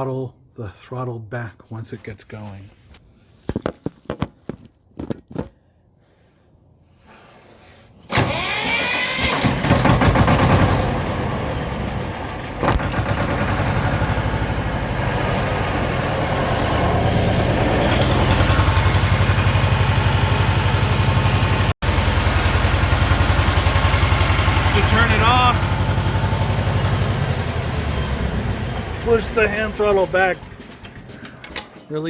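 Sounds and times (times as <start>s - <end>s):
electric starter cranking: 8.1s - 11.8s, 12.6s - 14.7s, 15.4s - 21.2s
diesel tractor engine idling: 8.1s - 32.0s.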